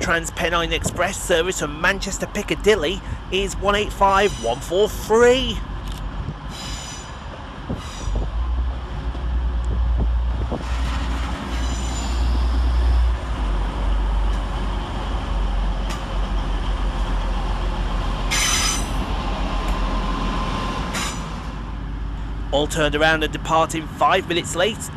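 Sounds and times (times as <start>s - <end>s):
train engine rumble: 0.0s - 24.9s
metallic squeals: 6.5s - 8.2s, 11.5s - 12.4s.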